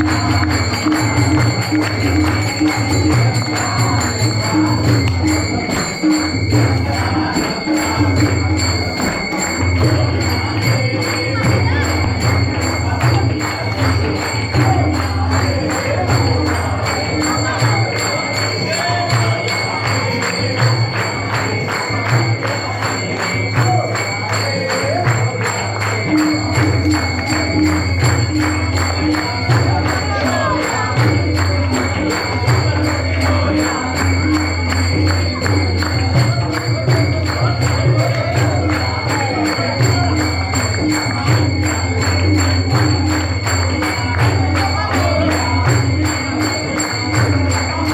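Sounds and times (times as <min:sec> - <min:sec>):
group singing: 0:00.0 - 0:47.9
ringing metallic tone: 0:00.0 - 0:47.9
tambourine jingling beat: 0:00.0 - 0:47.9.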